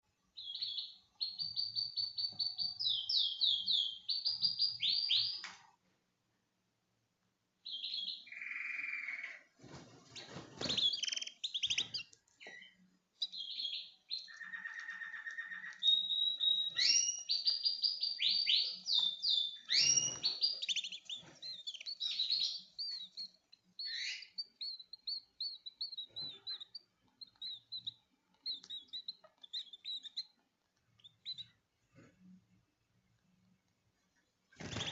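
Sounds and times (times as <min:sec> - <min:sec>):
canary singing trills: 0:00.4 - 0:05.5, 0:07.6 - 0:31.6, 0:34.6 - 0:34.9.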